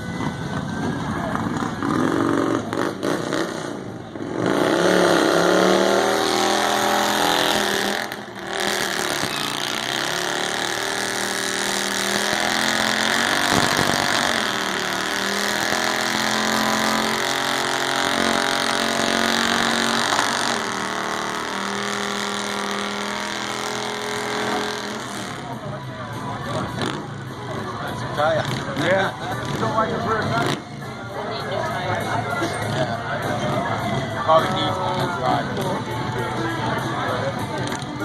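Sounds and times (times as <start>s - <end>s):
motorcycle engine at high revs: 1.4s - 25.7s.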